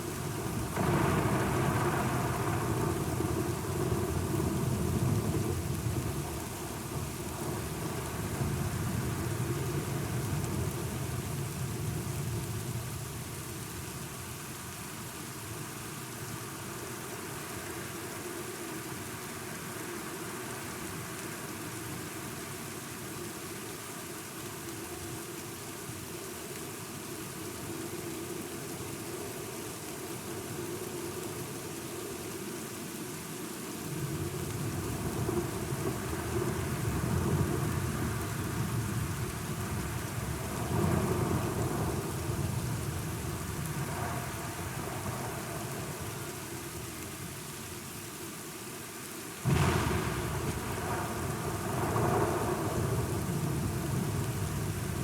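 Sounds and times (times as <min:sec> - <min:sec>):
steady rain: 0:00.0 - 0:55.0
rolling thunder: 0:00.6 - 0:06.4, 0:49.5 - 0:55.0.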